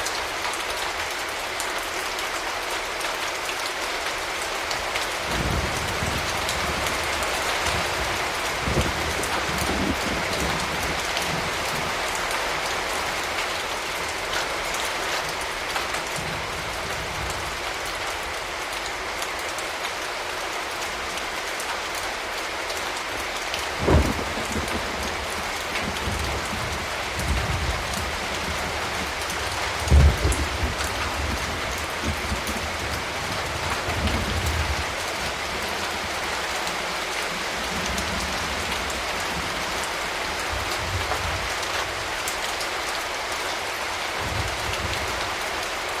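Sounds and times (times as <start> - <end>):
steady rain: 0.0 - 46.0.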